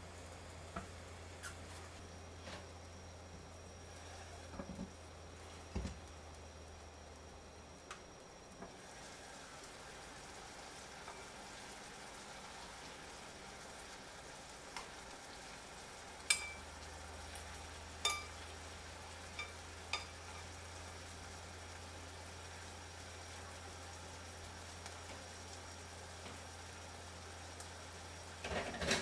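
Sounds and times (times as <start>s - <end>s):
food sizzling in a pot: 0.0s - 29.0s
metal tongs clinking on pot: 16.3s - 16.7s, 18.0s - 18.4s, 19.3s - 20.5s.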